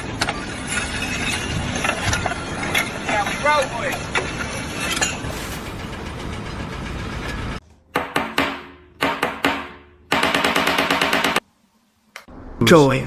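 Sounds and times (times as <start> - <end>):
sharp ringing knocks: 7.9 - 11.4.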